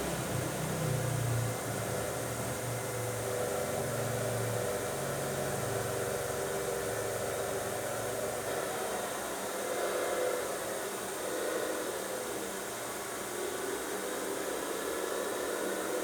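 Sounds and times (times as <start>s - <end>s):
engine running with low hum: 0.0s - 8.6s.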